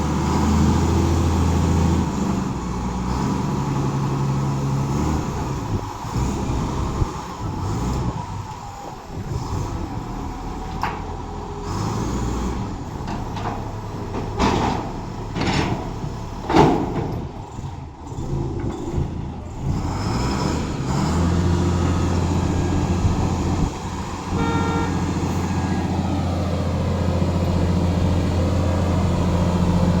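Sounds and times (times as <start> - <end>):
truck engine running: 0.0 - 30.0
brief pitched tone: 24.3 - 25.8.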